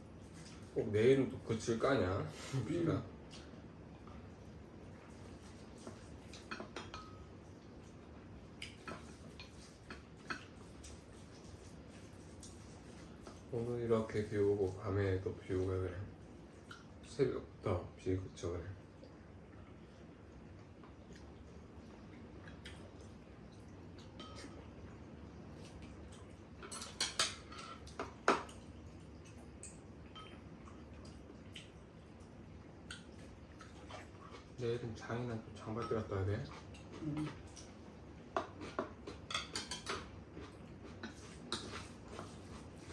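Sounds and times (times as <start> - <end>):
utensils clinking against dishes: 6.3 - 7.3, 24.2 - 24.6, 26.6 - 28.5, 38.6 - 40.1.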